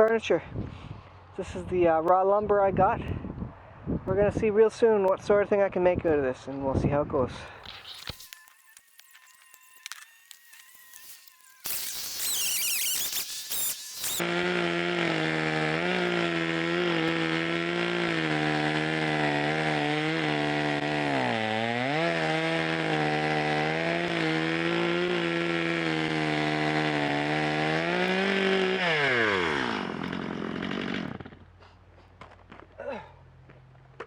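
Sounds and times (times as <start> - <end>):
chainsaw cutting log: 7.6 - 32.6.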